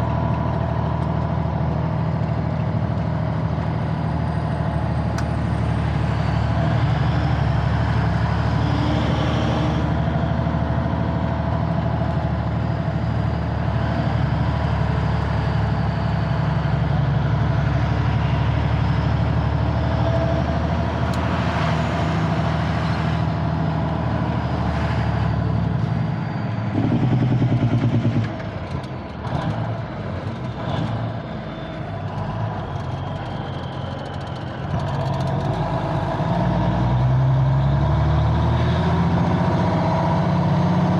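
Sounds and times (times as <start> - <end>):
diesel truck engine humming: 0.0 - 40.9.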